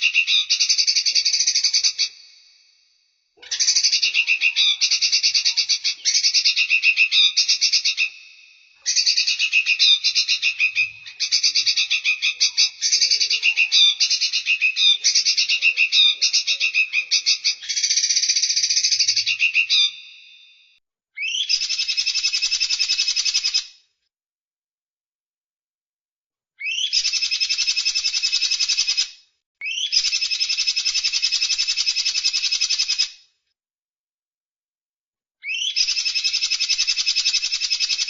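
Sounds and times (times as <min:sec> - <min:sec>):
songbird trilling: 0:00.0 - 0:02.2, 0:03.4 - 0:20.3, 0:29.6 - 0:31.2, 0:35.4 - 0:38.0.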